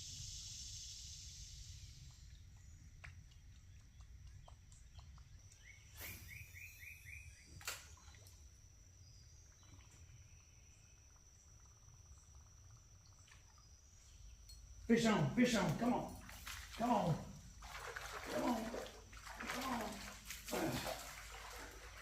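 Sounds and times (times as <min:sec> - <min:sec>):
bird chirping: 0:01.7 - 0:08.2.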